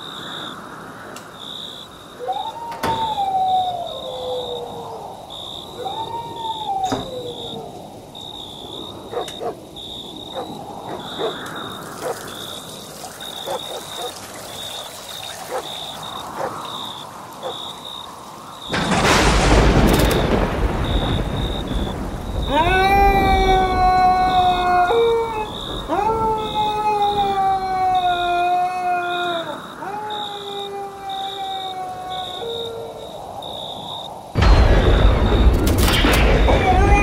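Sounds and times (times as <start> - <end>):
long drawn-out howl: 2.1 - 12.2, 21.2 - 33.5, 36.4 - 37.0.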